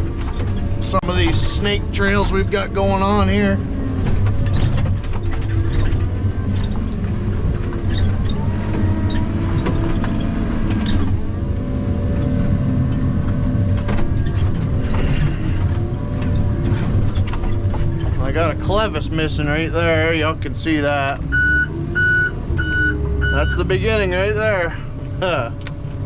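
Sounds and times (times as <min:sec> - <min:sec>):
diesel engine running under load: 0:00.0 - 0:26.0
machine knocks and rattles: 0:02.1 - 0:11.3, 0:12.1 - 0:18.6.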